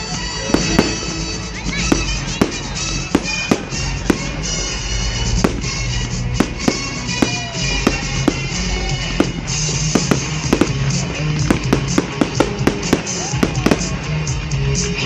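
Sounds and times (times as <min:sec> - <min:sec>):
music with long held notes: 0:00.0 - 0:15.0
fireworks bangs: 0:00.3 - 0:14.4.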